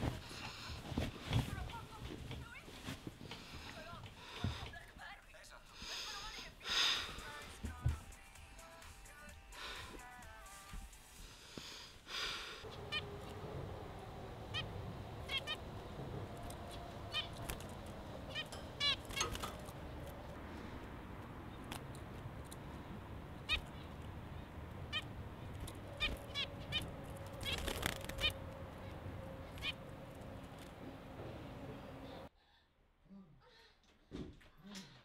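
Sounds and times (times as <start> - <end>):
low background hum: 12.6 - 32.6.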